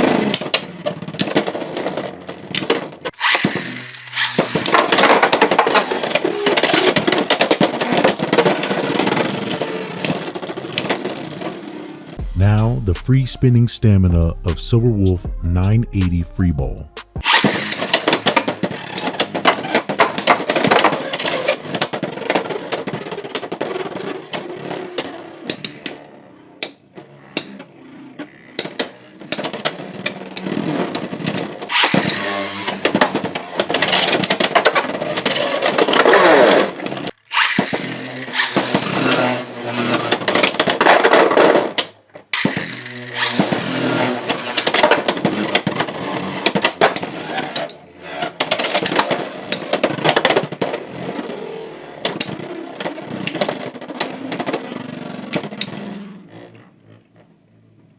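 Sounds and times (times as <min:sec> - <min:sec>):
spinning tops whirring and grinding: 0:00.0 - 0:12.2, 0:17.2 - 0:41.8, 0:42.4 - 0:56.6.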